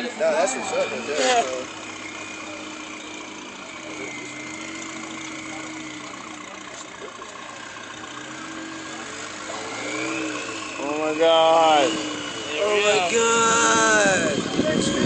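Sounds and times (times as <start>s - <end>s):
buggy engine running: 0.0s - 15.0s.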